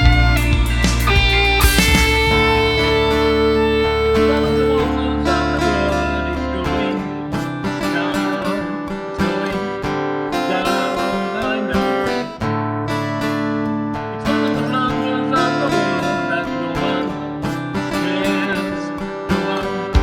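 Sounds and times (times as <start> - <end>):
sustained low notes: 0.0 - 6.7
acoustic guitar strumming: 0.0 - 20.0.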